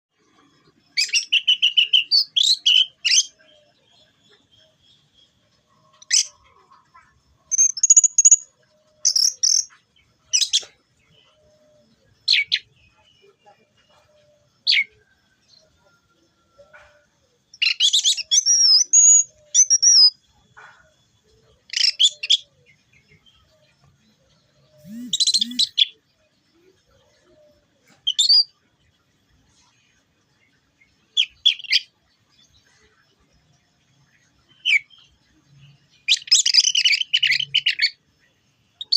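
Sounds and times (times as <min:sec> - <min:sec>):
thrush singing whistles and chirps: 0:00.9 - 0:05.4, 0:07.5 - 0:09.7, 0:17.5 - 0:20.2, 0:24.8 - 0:26.0, 0:28.0 - 0:28.6, 0:35.6 - 0:38.0.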